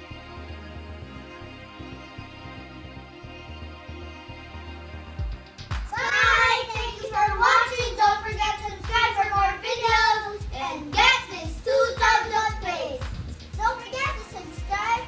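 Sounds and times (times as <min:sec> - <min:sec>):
child singing in a high voice: 0:05.9 - 0:15.0.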